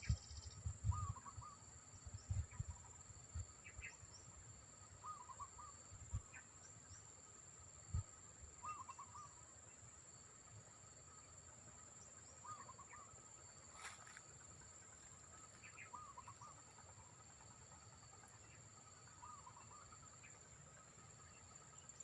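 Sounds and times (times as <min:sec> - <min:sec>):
wind buffeting microphone: 0:00.0 - 0:01.3, 0:02.1 - 0:02.8
high-pitched insect whine: 0:00.0 - 0:22.0
wavering bird call: 0:08.6 - 0:09.4.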